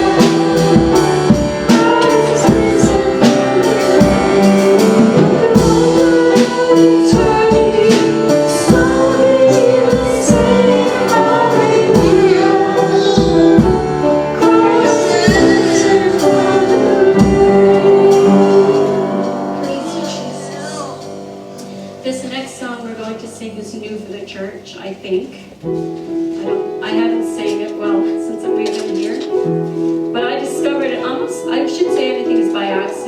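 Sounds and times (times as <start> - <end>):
drum hits: 0.0 - 21.4
worship band with singing: 0.0 - 22.0.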